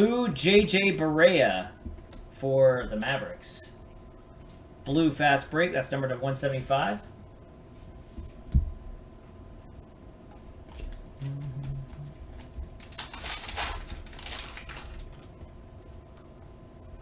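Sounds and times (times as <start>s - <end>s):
cards and wrapper rustling: 12.4s - 15.3s.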